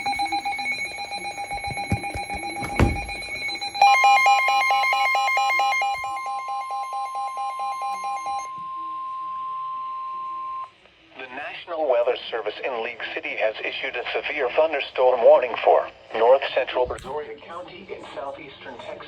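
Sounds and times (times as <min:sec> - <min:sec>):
steady high alarm tone: 0:00.0 - 0:10.7
knock: 0:01.5 - 0:03.3.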